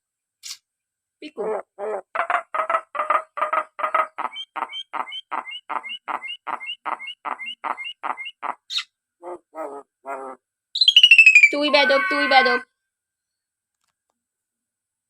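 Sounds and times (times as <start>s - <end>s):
myna repeating a chirping syllable: 1.2s - 12.6s
bird lower calls: 2.2s - 11.2s.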